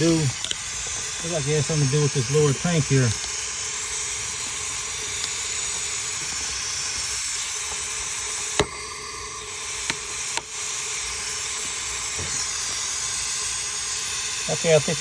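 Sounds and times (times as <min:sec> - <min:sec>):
sharp clicks: 0:00.0 - 0:01.2
pressurized air hissing from leak: 0:00.0 - 0:15.0.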